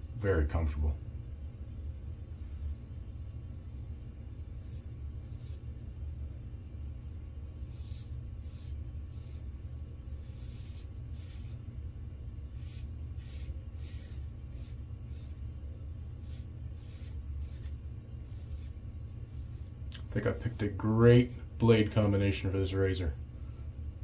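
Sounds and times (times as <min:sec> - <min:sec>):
steady low hum: 0:00.0 - 0:24.0
razor scraping stubble: 0:03.8 - 0:05.6, 0:07.5 - 0:09.5, 0:10.1 - 0:11.6, 0:12.4 - 0:15.4, 0:16.1 - 0:23.7.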